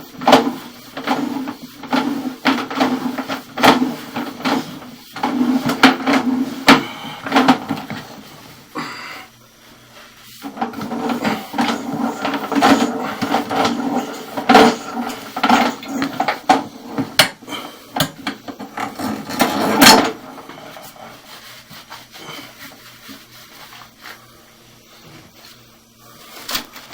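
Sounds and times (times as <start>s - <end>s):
knocking and clattering: 0.2s - 8.2s, 10.5s - 17.4s.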